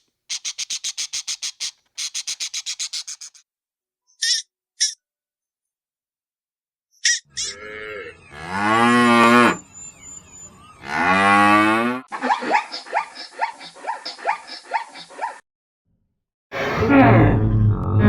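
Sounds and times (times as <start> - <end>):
rapid short animal calls: 0.0 - 3.4
cow mooing: 7.4 - 9.7, 10.8 - 12.1.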